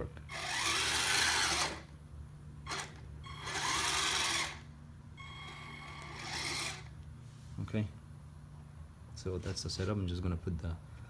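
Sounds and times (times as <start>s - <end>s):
constant low hum: 0.0s - 11.0s
small electric motors whirring: 0.3s - 1.9s, 2.6s - 7.0s.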